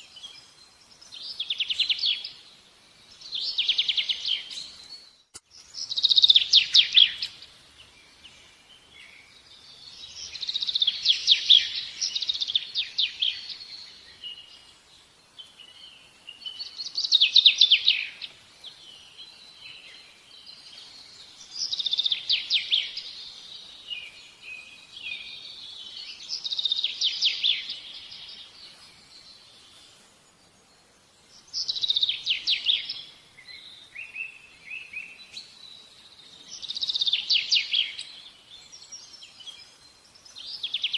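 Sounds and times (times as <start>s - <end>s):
songbird trilling: 5.8s - 7.5s.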